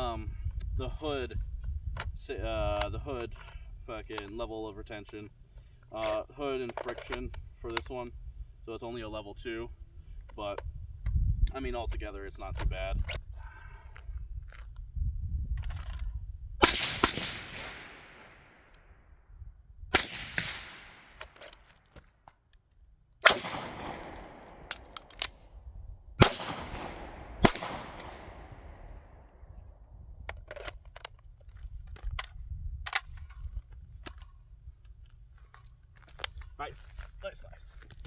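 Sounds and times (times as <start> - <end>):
gunshots echoing: 16.6 - 18.7, 19.9 - 21.2, 23.2 - 25.4, 26.2 - 29.3.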